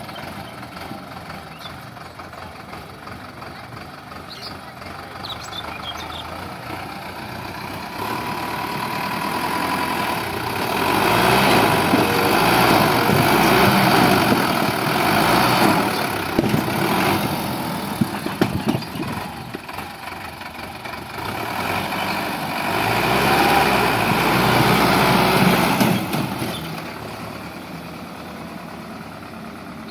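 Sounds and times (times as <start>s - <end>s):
tractor diesel engine running: 0.0s - 29.9s
sharp knocks: 18.0s - 19.7s.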